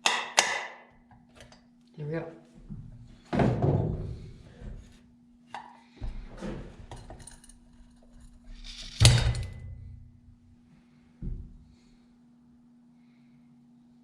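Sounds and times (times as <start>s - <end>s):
faint steady hum: 4.0s - 14.0s
metal parts knocking and clinking: 6.9s - 10.1s
metal clank ringing: 8.8s - 10.1s.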